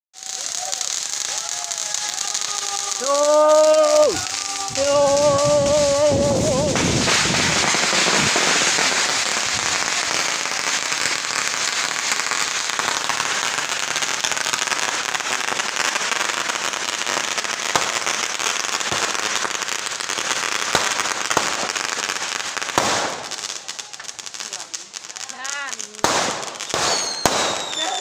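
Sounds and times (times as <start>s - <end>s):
firecrackers crackling: 0.1s - 28.0s
loud firecracker pops: 6.5s - 16.1s, 17.0s - 22.1s, 22.7s - 24.6s, 26.0s - 28.0s.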